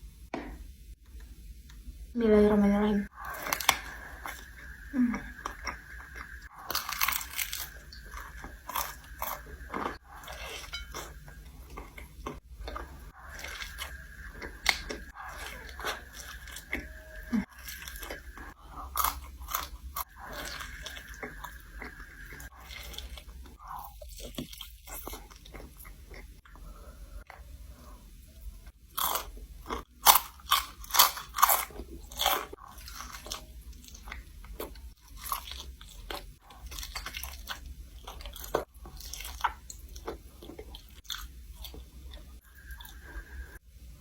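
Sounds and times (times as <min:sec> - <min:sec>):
crunching fried chicken skin: 0:03.2 - 0:26.2, 0:28.9 - 0:41.8.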